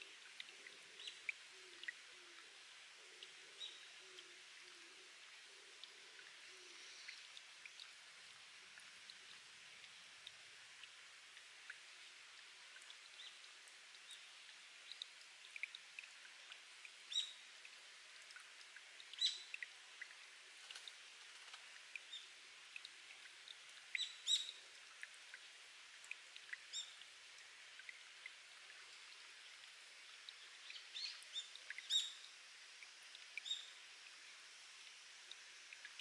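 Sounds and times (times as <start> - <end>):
faint water trickle: 0.0 - 36.0
water dripping into pool: 0.0 - 36.0.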